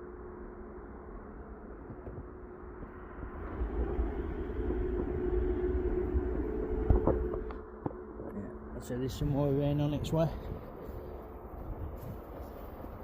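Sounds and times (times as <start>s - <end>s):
passing vehicle engine drone: 0.0s - 11.6s.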